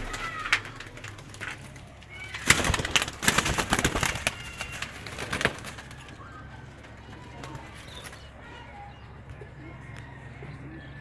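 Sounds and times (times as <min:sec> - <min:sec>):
sharp clicks and rustles: 0:00.0 - 0:08.3
pigeons cooing: 0:00.0 - 0:11.0.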